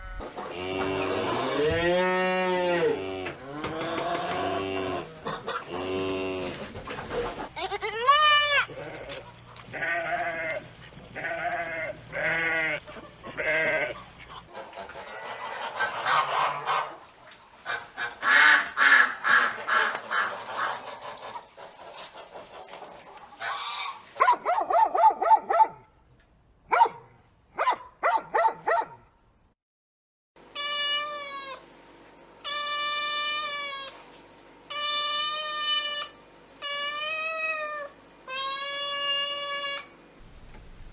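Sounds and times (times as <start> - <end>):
goats bleating: 8.0 - 14.2
geese honking: 12.2 - 24.2.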